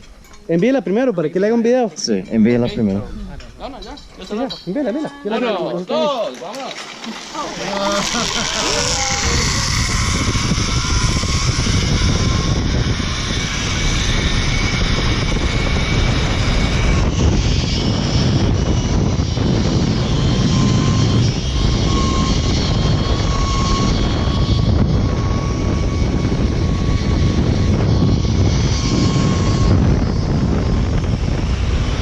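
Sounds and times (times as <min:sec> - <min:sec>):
pulleys whining on steel cable: 0:06.7 - 0:32.0
wind rushing on microphone: 0:07.5 - 0:32.0.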